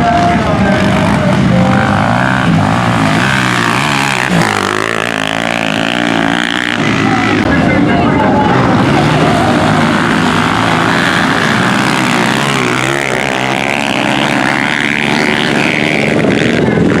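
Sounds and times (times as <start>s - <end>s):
motorcycle engines racing: 0.0s - 17.0s.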